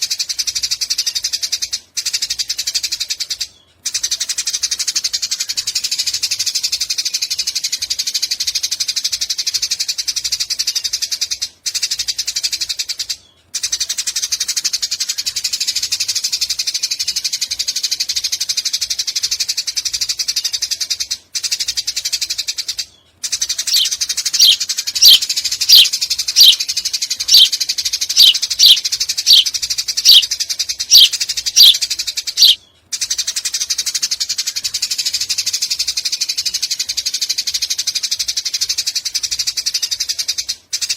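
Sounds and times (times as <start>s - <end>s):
sparrow chattering: 23.6s - 30.3s, 30.9s - 32.6s
sharp falling bird chirps: 23.7s - 26.6s, 27.3s - 27.5s, 28.2s - 30.2s, 30.9s - 31.8s, 32.4s - 32.6s.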